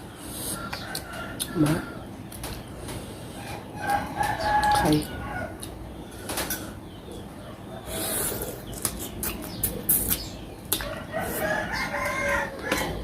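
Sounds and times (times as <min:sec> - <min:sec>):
close-up eating clicks and smacks: 0:02.3 - 0:03.0, 0:08.6 - 0:11.0
rooster crowing: 0:03.4 - 0:05.6, 0:10.8 - 0:13.0.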